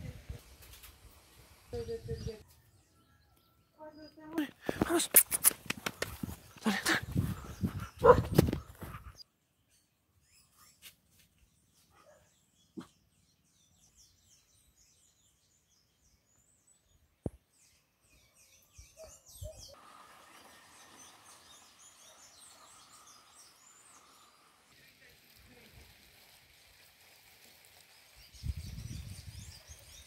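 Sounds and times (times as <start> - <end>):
birds chirping: 1.8 - 24.7
steady hiss: 19.8 - 28.7.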